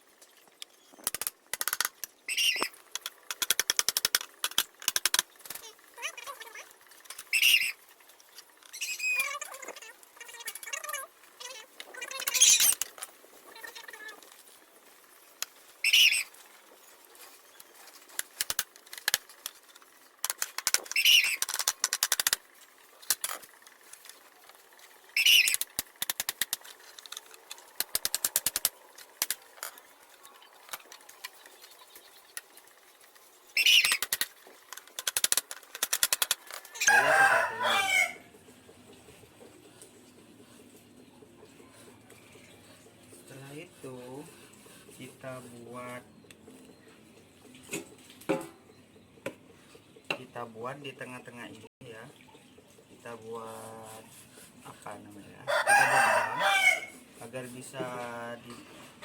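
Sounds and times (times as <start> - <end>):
plastic clicking and scraping: 0.2 - 5.7, 17.2 - 24.6, 25.4 - 36.8.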